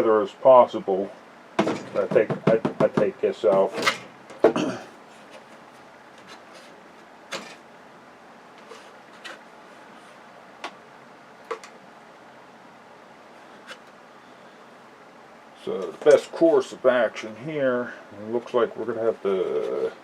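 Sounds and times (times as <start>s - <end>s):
clicks of tv parts being handled: 11.4s - 11.8s.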